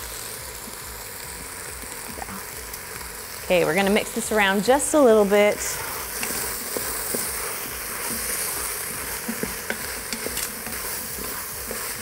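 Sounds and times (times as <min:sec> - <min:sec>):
food sizzling in a pot: 0:00.0 - 0:12.0
wooden spoon knocking against pot: 0:09.2 - 0:10.5.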